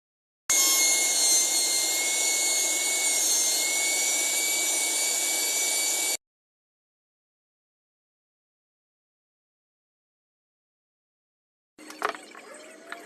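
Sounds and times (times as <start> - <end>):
small motor high-pitched whine: 0.5 - 6.2.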